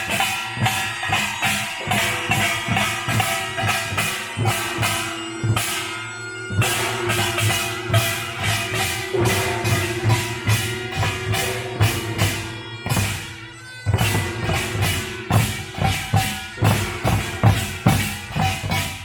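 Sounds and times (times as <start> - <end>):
drums beating quick rhythm: 0.0 - 19.0
ringing metal gongs: 0.0 - 19.0.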